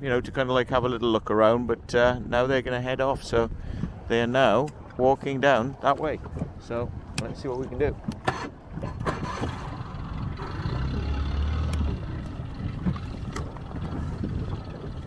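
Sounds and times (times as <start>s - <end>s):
water noise: 0.0s - 15.0s
motorboat engine idling: 6.2s - 15.0s.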